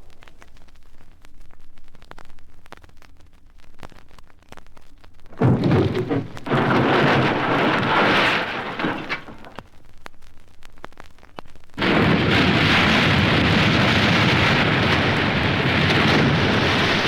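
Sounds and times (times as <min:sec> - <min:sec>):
vinyl surface crackle and pops: 0:00.0 - 0:17.0
thunder crash and roll: 0:05.3 - 0:09.6, 0:11.8 - 0:17.0.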